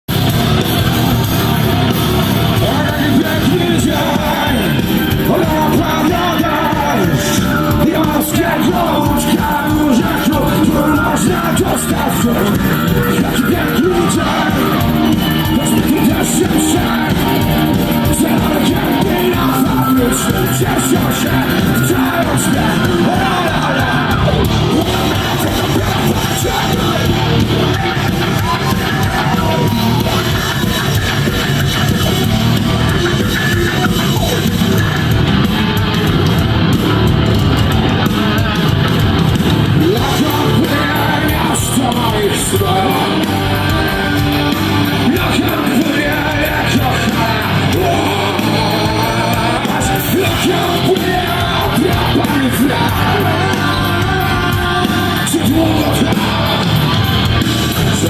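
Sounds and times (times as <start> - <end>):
crowd yelling: 0.1 - 58.0
live rock band playing: 0.1 - 58.0
person singing: 2.4 - 35.9, 39.6 - 58.0.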